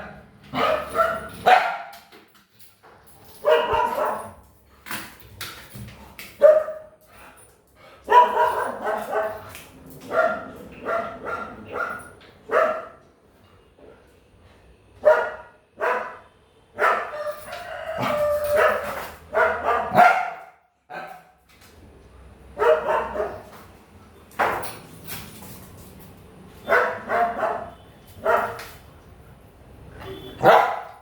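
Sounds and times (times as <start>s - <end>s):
dog barking angrily: 0.0s - 1.9s, 3.4s - 4.4s, 6.4s - 7.0s, 8.0s - 13.0s, 15.0s - 16.2s, 16.8s - 17.3s, 17.9s - 21.3s, 22.6s - 23.5s, 26.6s - 28.6s, 30.4s - 31.0s.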